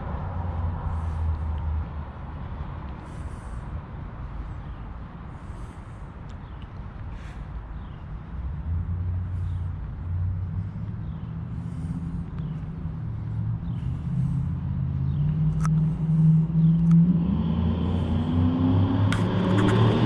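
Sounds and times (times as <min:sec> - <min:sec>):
pickup engine rumbling: 0:06.9 - 0:18.5.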